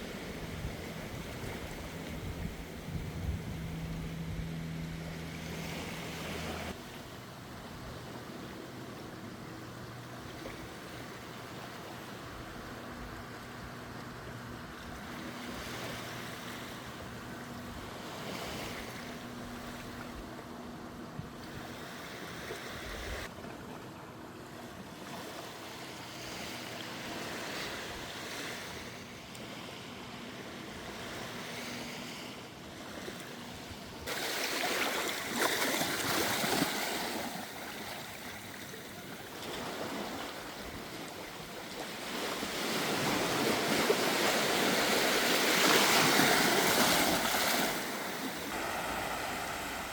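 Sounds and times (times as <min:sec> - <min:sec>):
wind on microphone: 0:00.0 - 0:06.7
rush of surf: 0:00.0 - 0:09.1, 0:14.4 - 0:20.2, 0:21.2 - 0:23.3, 0:24.9 - 0:49.9
low steady hum: 0:00.0 - 0:27.9
sea waves: 0:00.0 - 0:49.9.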